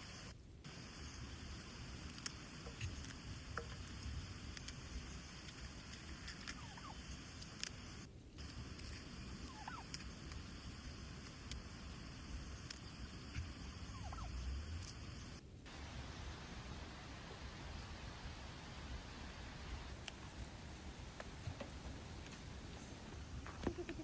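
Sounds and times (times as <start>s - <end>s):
faint bird calls: 6.3s - 15.4s.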